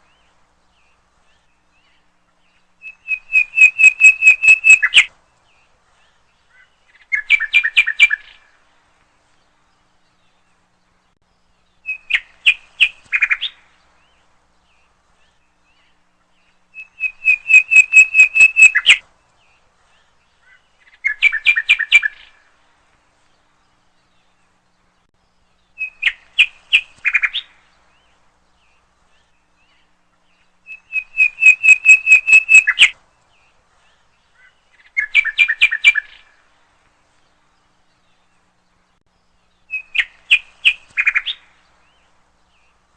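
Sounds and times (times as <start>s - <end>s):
bird calling rapid repeated notes: 2.8s - 5.1s, 16.8s - 19.0s, 30.7s - 33.0s.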